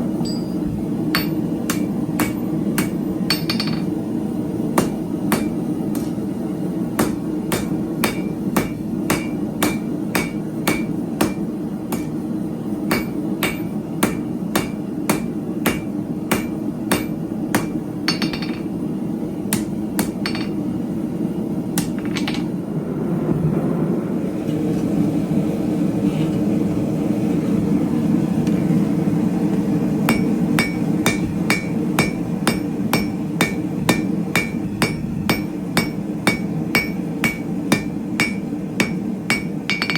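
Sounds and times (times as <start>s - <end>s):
hammer striking steel on anvil: 0.2s - 4.0s, 4.8s - 6.3s, 7.0s - 12.3s, 12.9s - 18.8s, 19.5s - 20.8s, 21.8s - 22.5s, 30.1s - 39.9s
steady low rumble: 19.3s - 39.5s.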